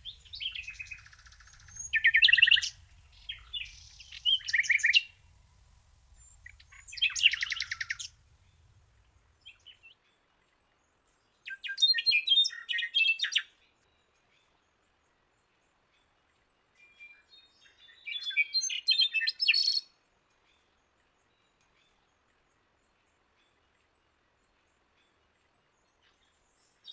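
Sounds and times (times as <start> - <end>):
songbird singing: 0.0 - 10.0, 16.8 - 19.8.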